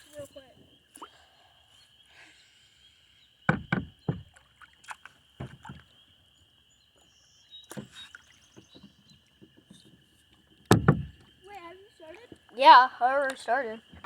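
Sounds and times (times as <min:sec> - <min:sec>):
paddle knocking on kayak hull: 0:03.5 - 0:04.3, 0:10.6 - 0:11.3.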